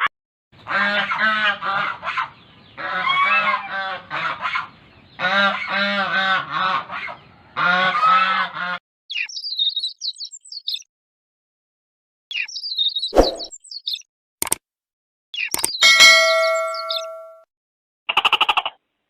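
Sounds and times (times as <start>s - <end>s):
young birds peeping: 0.6s - 10.9s
goose honking: 0.7s - 8.8s
sharp clicks: 15.4s - 15.8s.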